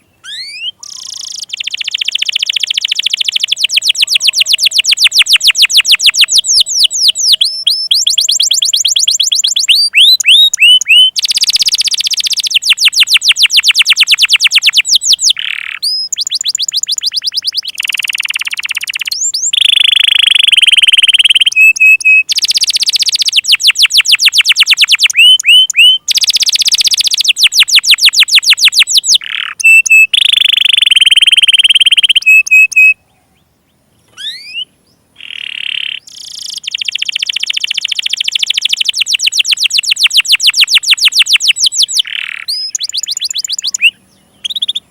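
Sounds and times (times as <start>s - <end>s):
canary singing trills: 0.0s - 44.9s.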